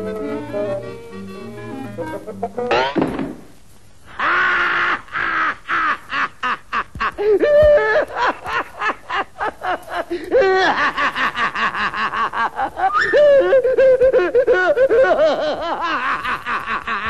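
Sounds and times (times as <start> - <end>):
high-pitched laughter: 4.2 - 17.0.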